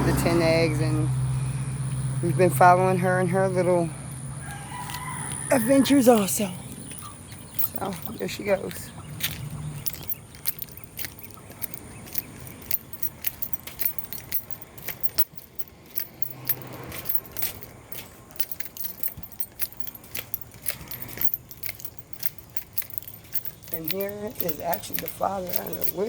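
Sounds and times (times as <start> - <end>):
small items clicking and jingling: 5.9 - 26.0.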